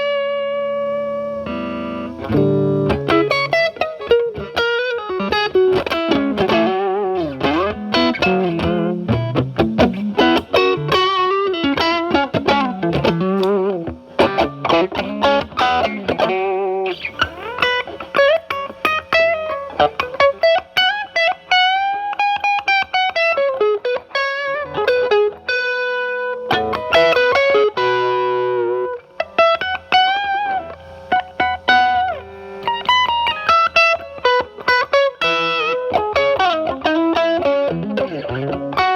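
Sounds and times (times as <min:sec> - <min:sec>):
overdriven electric guitar phrases: 0:00.0 - 0:38.9
strummed guitar chords: 0:00.0 - 0:38.9.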